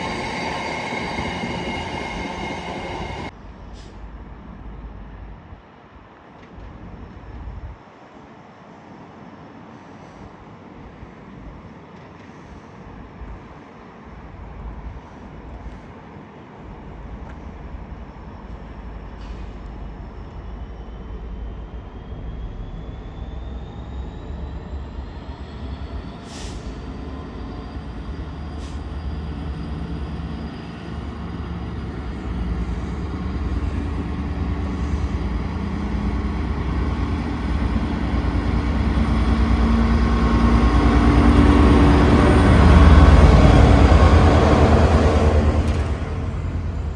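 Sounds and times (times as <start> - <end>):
high whine: 0.0 - 3.3
train approaching: 0.0 - 5.4, 10.8 - 46.9.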